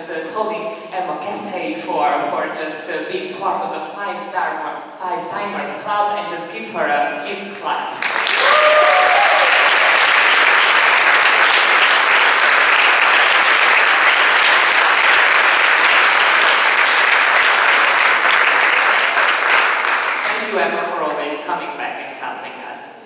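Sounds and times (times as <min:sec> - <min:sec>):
audience applauding: 0:07.9 - 0:20.6
cheers and whoops: 0:08.2 - 0:10.2.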